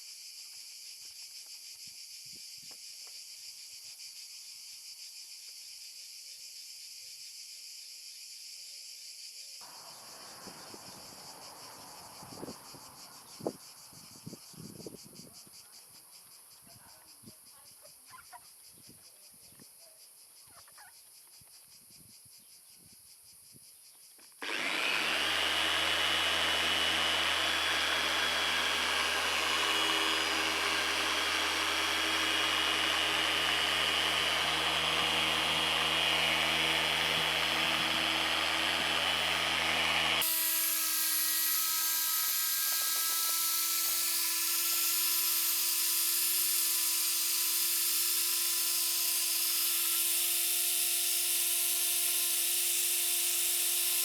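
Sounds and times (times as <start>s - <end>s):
polisher motor hum and whine: 24.4s - 54.0s.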